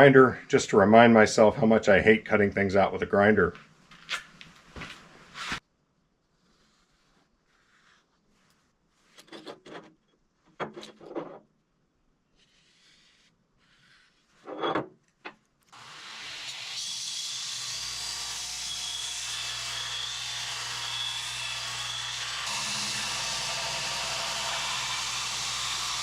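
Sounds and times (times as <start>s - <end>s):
angle grinder grinding steel: 15.7s - 26.0s.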